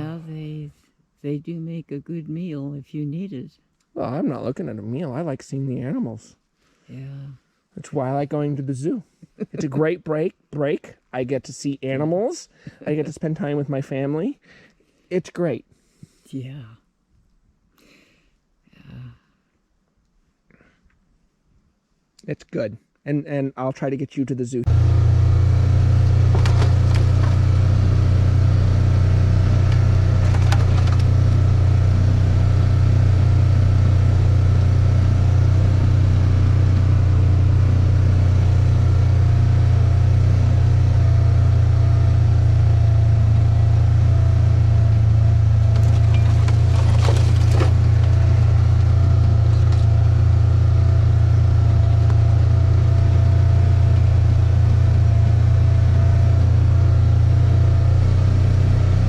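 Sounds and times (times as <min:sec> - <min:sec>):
car engine and road noise: 0:24.6 - 0:59.0.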